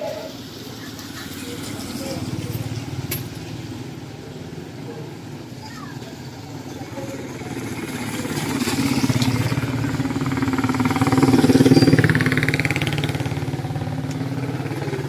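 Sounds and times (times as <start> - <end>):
vehicle engine passing by: 6.2 - 15.0.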